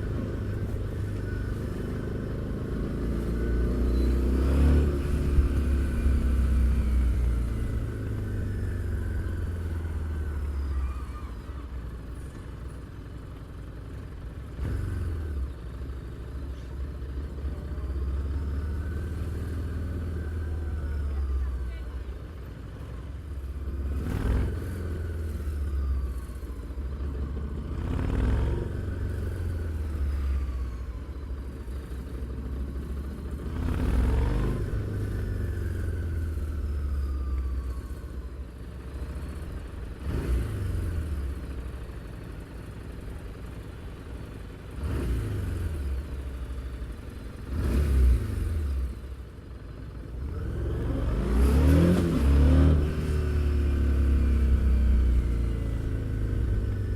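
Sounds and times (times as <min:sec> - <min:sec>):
motorcycle engine revving: 0:33.3 - 0:37.0, 0:50.2 - 0:56.9.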